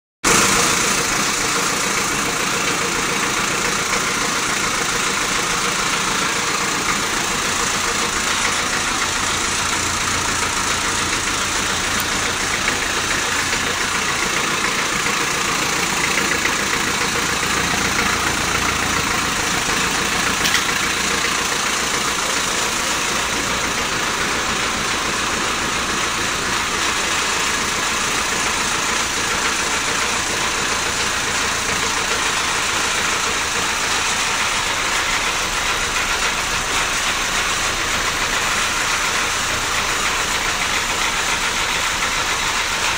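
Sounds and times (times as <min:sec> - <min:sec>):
car engine idling: 0:00.2 - 0:42.9.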